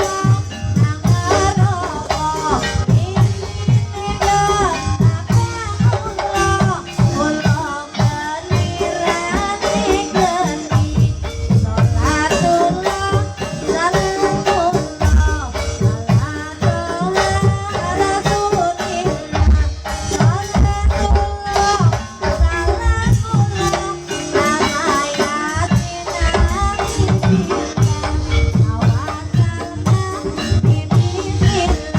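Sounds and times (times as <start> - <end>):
hand drum strokes: 0.0 - 31.9
rattling metal percussion: 0.0 - 31.9.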